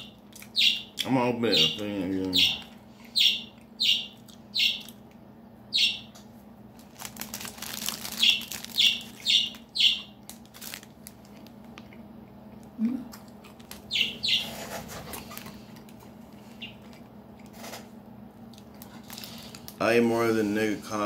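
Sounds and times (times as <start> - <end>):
bird chirping: 0.0 - 5.0, 5.7 - 6.2, 8.1 - 10.2, 13.9 - 14.6
steady low hum: 0.0 - 21.0
plastic wrapping crinkling: 6.7 - 12.0, 13.2 - 16.0, 18.5 - 19.8.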